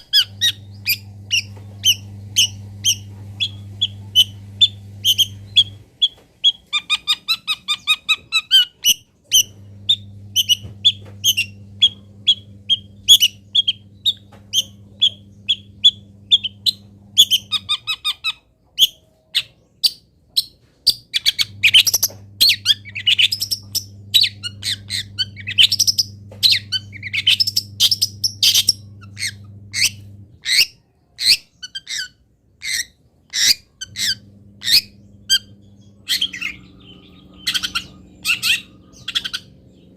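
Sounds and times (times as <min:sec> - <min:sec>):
low steady hum: 0:00.0 - 0:39.9
bird chirps and sweeping phrases: 0:33.9 - 0:39.9.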